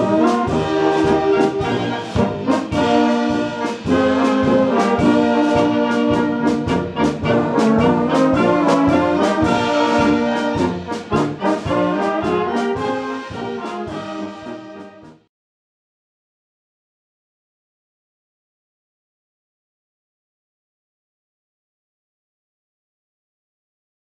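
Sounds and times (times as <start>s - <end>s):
brass band playing polka: 0.0s - 15.3s.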